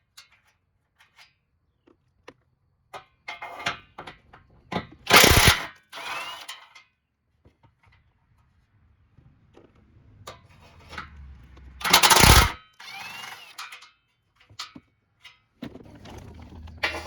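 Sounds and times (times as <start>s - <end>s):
power tool bursts: 5.1s - 6.5s, 11.8s - 13.7s.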